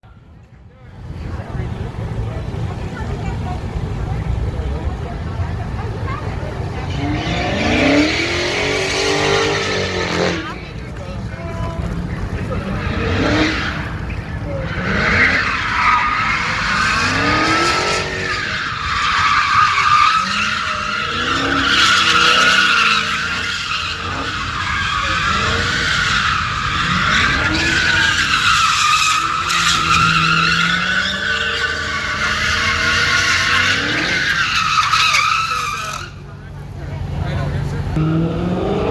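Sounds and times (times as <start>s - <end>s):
car engine revving: 0.9s - 38.9s
tyres squealing: 5.4s - 38.2s.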